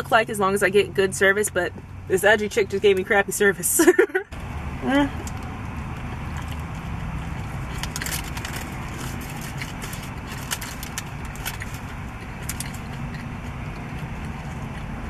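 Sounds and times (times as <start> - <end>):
car engine idling: 4.2 - 15.0
close chewing: 5.2 - 15.0
foil wrapper crinkling: 7.4 - 13.4.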